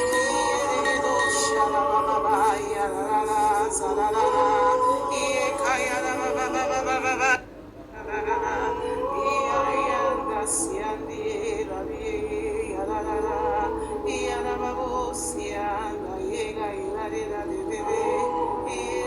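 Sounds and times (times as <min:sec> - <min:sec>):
low drone: 0:00.0 - 0:19.0
person singing wavering notes: 0:00.0 - 0:19.0
slow worship music: 0:00.0 - 0:19.0.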